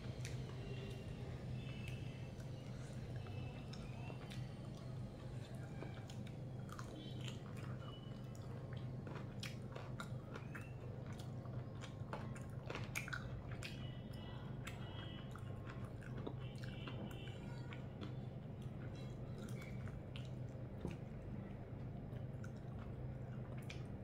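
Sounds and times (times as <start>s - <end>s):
steady low hum: 0.0s - 24.0s
chewing: 0.1s - 24.0s
wet clicks and smacks: 7.3s - 13.9s.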